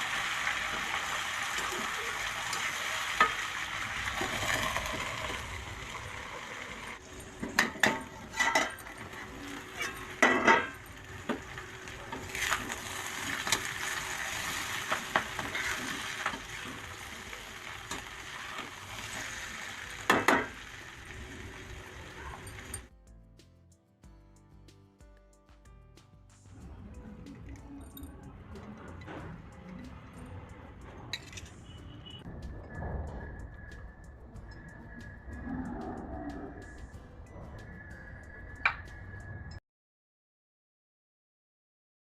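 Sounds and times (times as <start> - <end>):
food sizzling in a pan: 0.0 - 22.9
spatula scraping a pan: 7.3 - 20.6.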